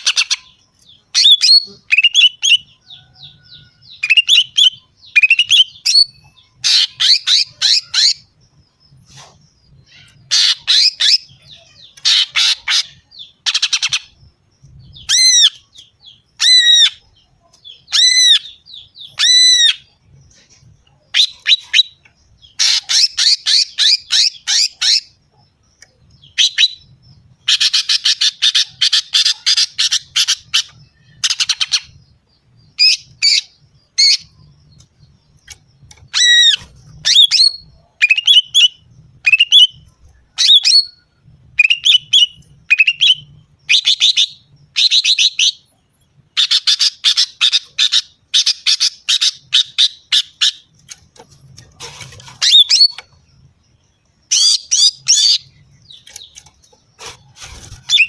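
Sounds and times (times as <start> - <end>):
bird harsh chattering call: 9.1 - 14.2.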